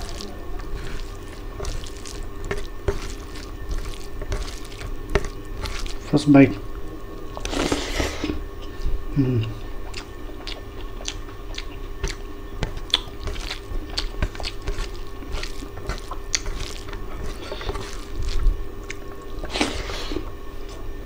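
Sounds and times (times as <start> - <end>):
man chewing with wet smacks: 0.0 - 6.1, 6.7 - 21.0
fingers squishing rice: 0.0 - 6.2, 10.4 - 19.8
faint steady hum: 0.0 - 21.0.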